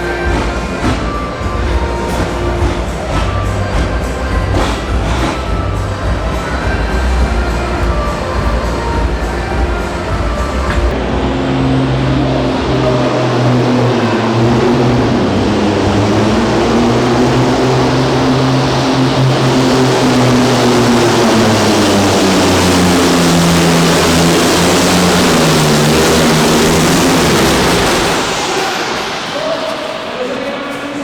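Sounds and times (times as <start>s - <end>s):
diesel truck engine under load: 0.0s - 30.9s
rushing hiss: 12.5s - 31.0s.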